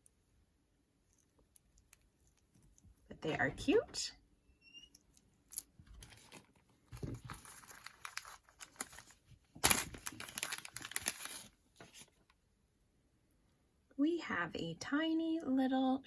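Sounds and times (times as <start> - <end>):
packaging crinkling: 6.0 - 12.2.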